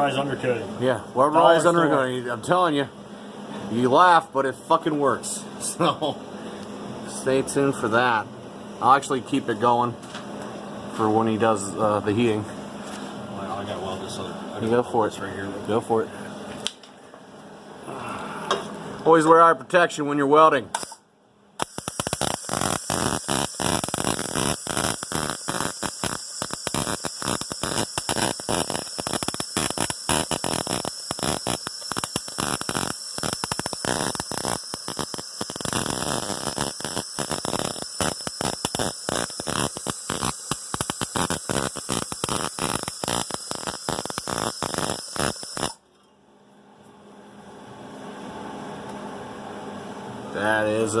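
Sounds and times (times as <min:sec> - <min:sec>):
arc welder crackling: 0:20.7 - 0:21.0, 0:21.6 - 0:45.8.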